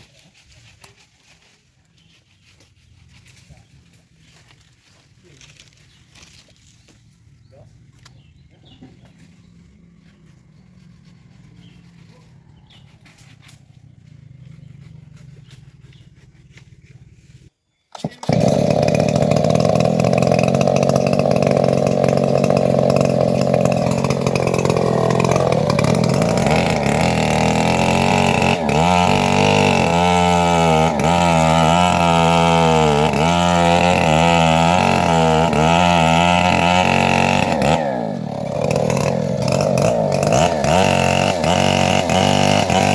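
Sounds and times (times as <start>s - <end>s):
band sawmill running: 18.2s - 42.9s.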